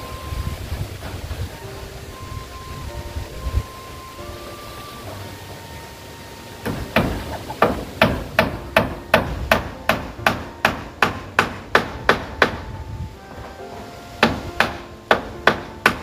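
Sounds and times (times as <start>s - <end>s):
hammer hitting nail into metal roofing: 6.6s - 16.0s.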